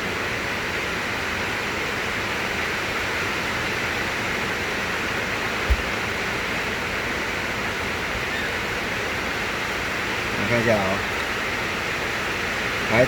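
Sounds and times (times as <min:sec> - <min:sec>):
low thump: 0:05.7 - 0:06.0.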